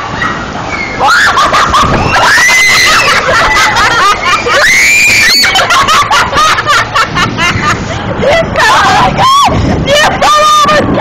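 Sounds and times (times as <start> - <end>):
young people screaming: 0.2 - 6.0, 8.2 - 11.0.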